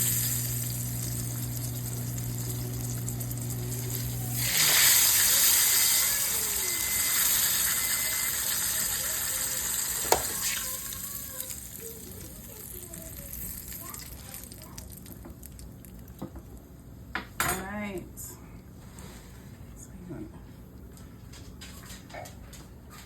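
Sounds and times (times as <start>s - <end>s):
low steady hum: 0.0s - 8.6s, 10.1s - 22.7s
kitchen tap running: 0.0s - 16.6s.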